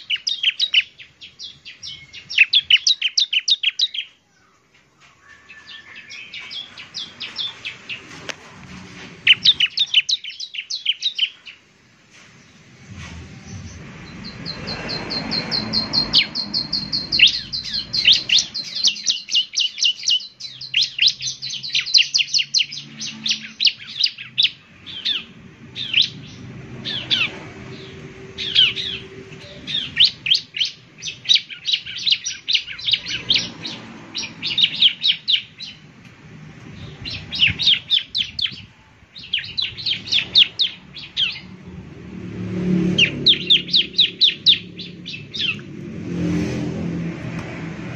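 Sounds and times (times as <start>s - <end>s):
bird singing fast high notes: 13.5s - 35.8s, 42.6s - 45.7s.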